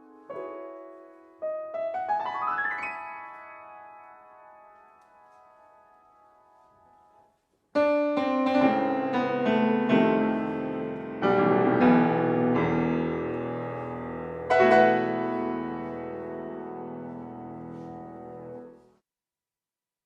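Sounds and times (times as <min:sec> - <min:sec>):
solo piano chords: 0:00.0 - 0:07.2, 0:07.8 - 0:18.8.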